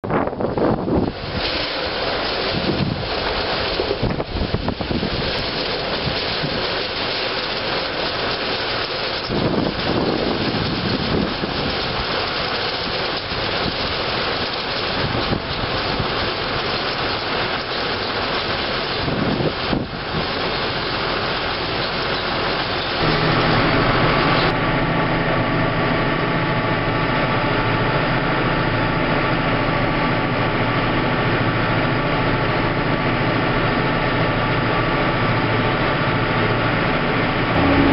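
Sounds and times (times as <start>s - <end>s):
wind buffeting microphone: 0.0s - 1.6s, 2.4s - 6.7s, 9.3s - 12.1s, 14.9s - 16.3s, 19.0s - 20.6s
tractor diesel engine droning: 0.2s - 37.9s.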